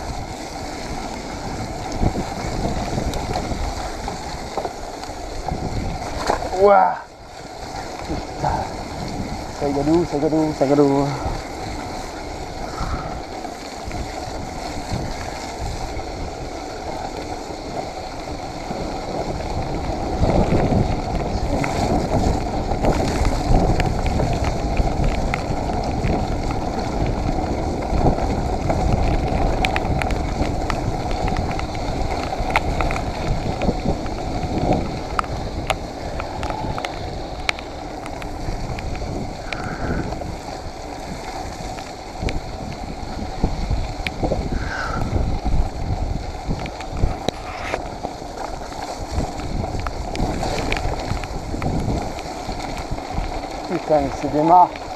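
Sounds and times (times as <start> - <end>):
bike rattling and knocking: 0.0 - 54.9
tyres through mud and water: 0.0 - 54.9
wind on microphone: 0.0 - 54.9.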